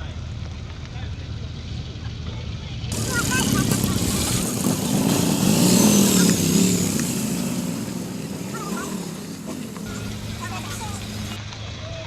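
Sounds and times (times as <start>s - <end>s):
car engine revving: 2.9s - 11.4s.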